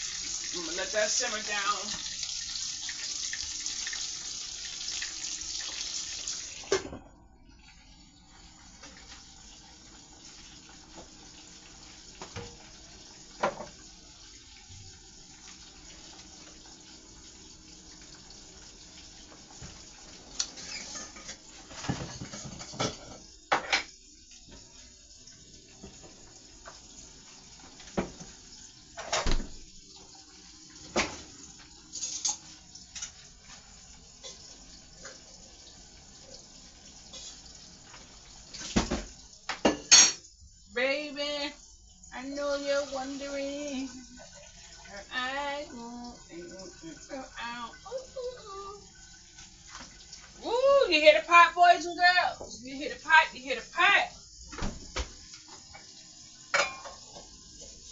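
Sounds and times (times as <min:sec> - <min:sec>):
pots and utensils clinking: 0:19.3 - 0:24.6, 0:30.8 - 0:35.3, 0:37.0 - 0:40.3, 0:55.3 - 0:57.9.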